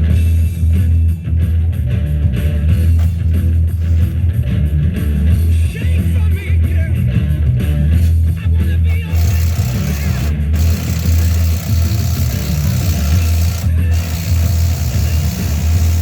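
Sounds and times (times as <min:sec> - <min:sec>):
rock song from radio: 0:00.0 - 0:16.0.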